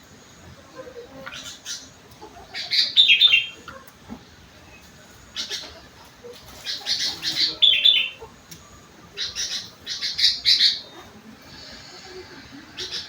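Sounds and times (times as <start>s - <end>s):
bird chirping song: 1.3s - 3.6s, 6.6s - 8.2s, 9.1s - 11.0s.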